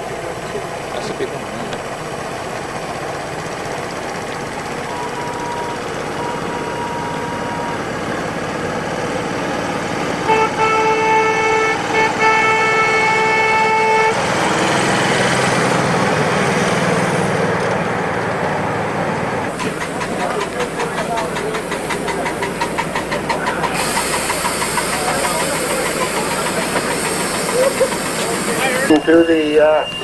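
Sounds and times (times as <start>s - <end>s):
locomotive whistle blasts: 4.9s - 8.0s, 10.2s - 15.2s, 23.4s - 30.0s
loud rushing hiss: 19.5s - 30.0s.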